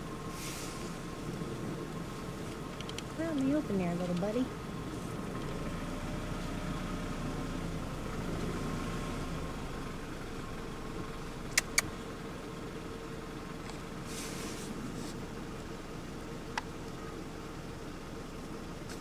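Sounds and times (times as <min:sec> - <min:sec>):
vehicle engine idling: 0:00.0 - 0:19.0
sharp clicks: 0:02.5 - 0:04.3, 0:11.5 - 0:11.9.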